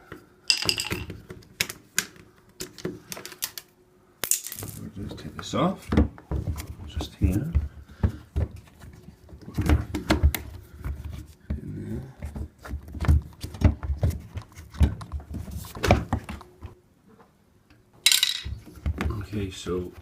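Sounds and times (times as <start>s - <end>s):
parts knocking and rattling: 0.5s - 1.2s, 18.1s - 19.1s.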